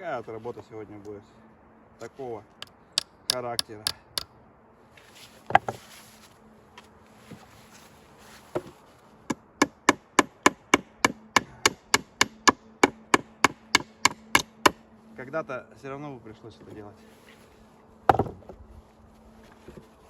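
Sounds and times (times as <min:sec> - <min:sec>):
hammer knocking on wood: 0:18.1 - 0:18.5.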